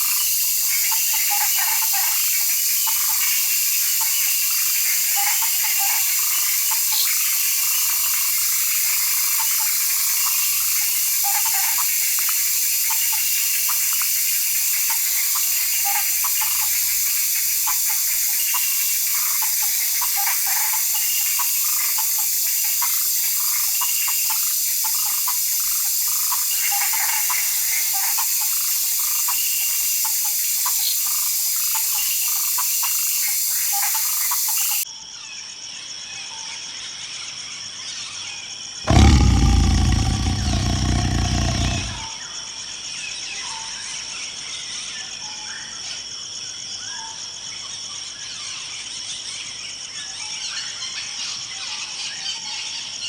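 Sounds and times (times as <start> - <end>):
gurgling croaking notes: 38.9 - 42.0.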